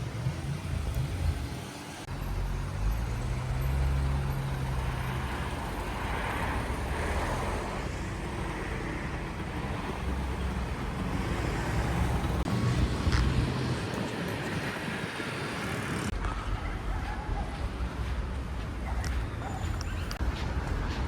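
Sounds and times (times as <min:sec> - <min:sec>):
vehicle passing: 0:00.0 - 0:16.2
road traffic: 0:00.0 - 0:21.0.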